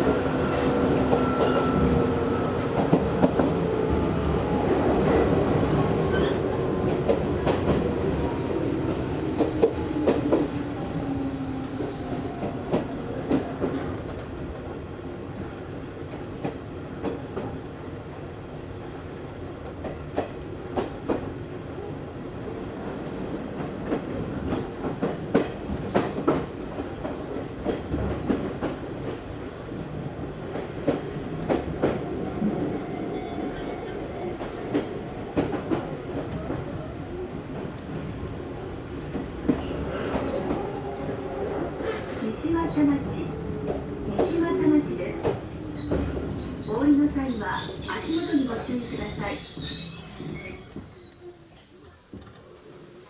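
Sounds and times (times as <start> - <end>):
train rolling noise: 0.0 - 53.0.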